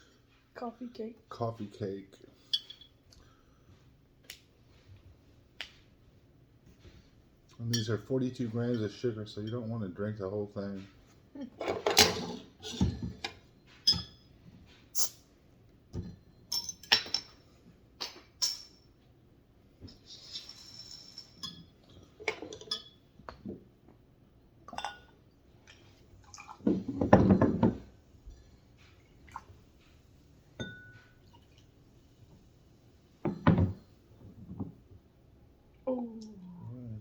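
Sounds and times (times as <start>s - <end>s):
glass bottle and cups clinking: 12.7s - 14.2s, 24.7s - 25.2s, 26.7s - 27.8s, 30.6s - 31.2s.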